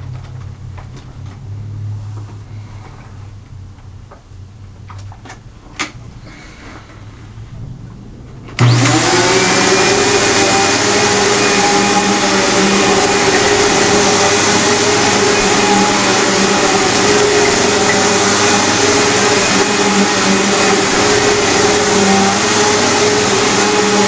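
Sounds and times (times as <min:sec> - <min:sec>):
vacuum cleaner running: 0:08.5 - 0:24.0.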